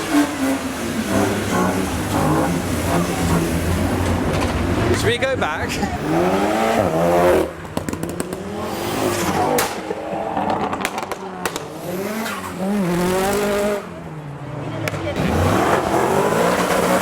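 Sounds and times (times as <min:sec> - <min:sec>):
car engine revving: 0:00.0 - 0:17.0
sharp cracks: 0:09.5 - 0:11.8.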